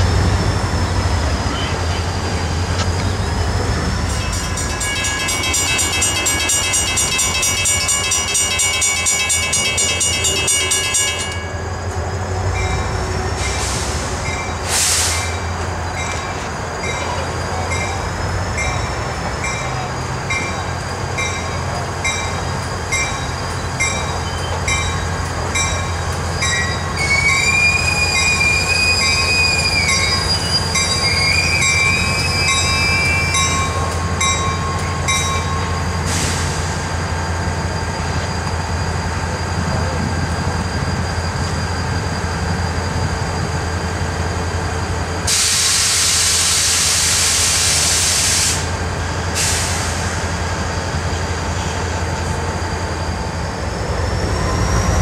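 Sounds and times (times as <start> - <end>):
diesel locomotive engine rumble: 0.0 - 55.0
wheel flanges squealing: 0.2 - 45.3, 50.4 - 55.0
crossing bell ringing: 4.0 - 14.7, 15.9 - 36.0.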